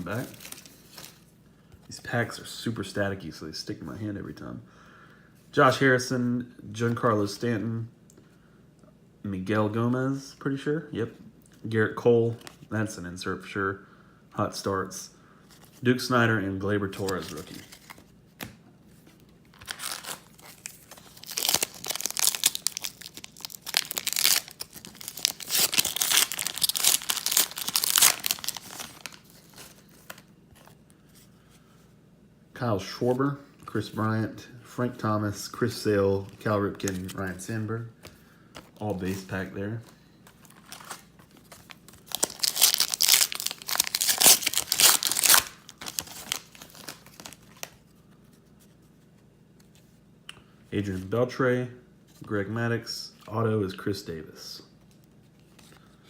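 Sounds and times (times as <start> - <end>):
wrapper tearing and crinkling: 0.1 - 1.2, 19.5 - 30.3, 40.4 - 47.8.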